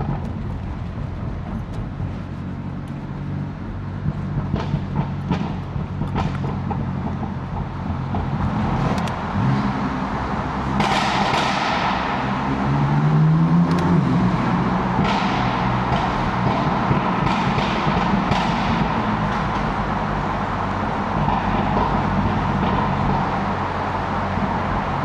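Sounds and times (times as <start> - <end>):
car engine accelerating: 0.0 - 25.0
exhaust pops: 3.9 - 9.4.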